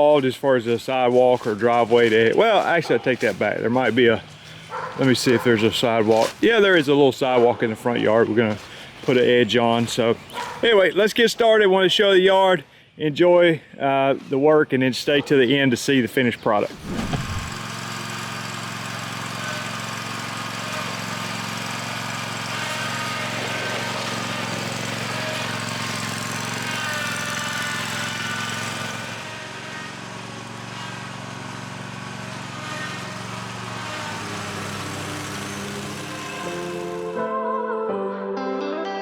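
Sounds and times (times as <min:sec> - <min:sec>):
lawn mower engine running: 0:00.0 - 0:07.0, 0:16.7 - 0:37.1.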